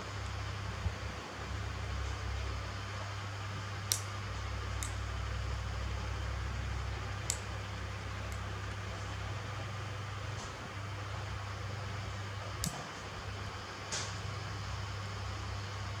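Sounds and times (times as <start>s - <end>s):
steady low hum: 0.0s - 16.0s
nail clippers clicking: 3.9s - 4.1s, 4.8s - 5.0s, 7.2s - 7.5s.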